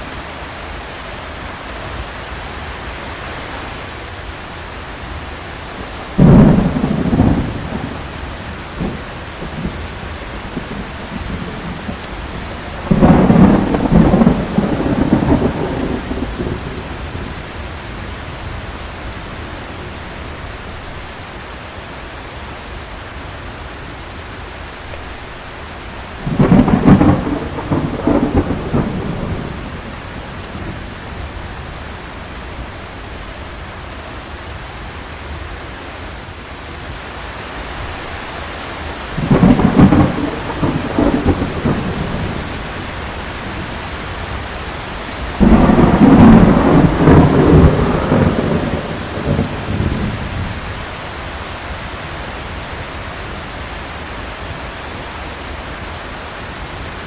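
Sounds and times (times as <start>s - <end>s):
heavy rain: 0.0s - 57.0s
thunder rolling: 6.0s - 18.6s, 26.2s - 32.6s, 39.1s - 50.9s.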